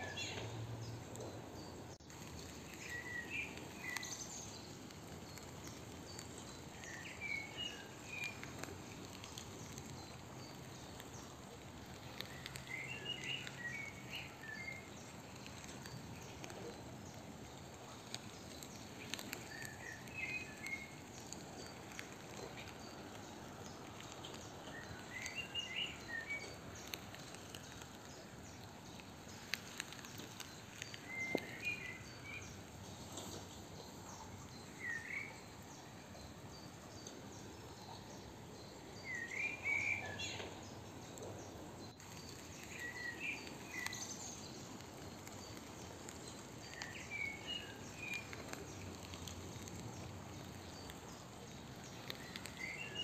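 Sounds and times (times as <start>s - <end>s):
songbird chirping: 0.0s - 53.0s
steady hiss: 0.0s - 53.0s
sharp clicks: 2.0s - 35.2s.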